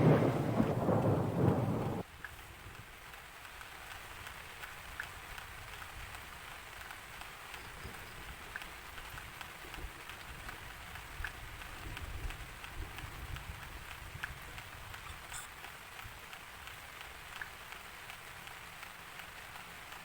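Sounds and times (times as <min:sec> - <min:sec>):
low uneven rumble: 0:00.0 - 0:02.0
raindrops ticking on a surface: 0:00.0 - 0:20.0
steady rain: 0:00.0 - 0:20.0.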